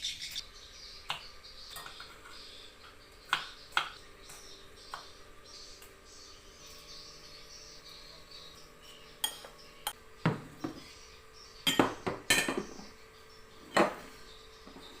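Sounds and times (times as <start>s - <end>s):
utensils clinking against pots: 1.1s - 3.0s, 9.2s - 10.0s, 11.6s - 12.8s.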